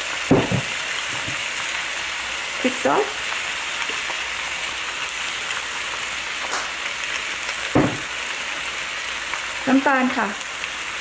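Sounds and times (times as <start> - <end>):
food sizzling in a wok: 0.0 - 11.0
knock: 0.3 - 1.4, 7.8 - 8.1.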